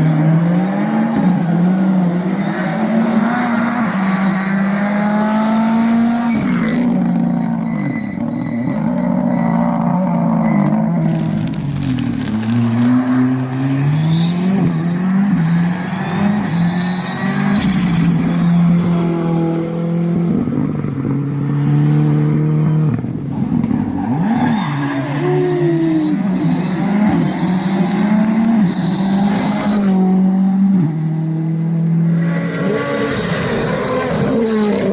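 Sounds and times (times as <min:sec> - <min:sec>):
rally car engine revving: 0:00.0 - 0:34.9
tyres on gravel: 0:10.6 - 0:20.5, 0:23.1 - 0:30.2, 0:32.2 - 0:34.9.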